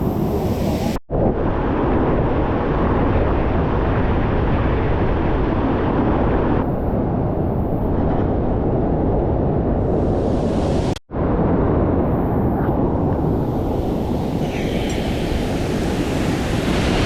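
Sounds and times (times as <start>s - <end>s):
waterfall rushing: 13.7s - 17.0s.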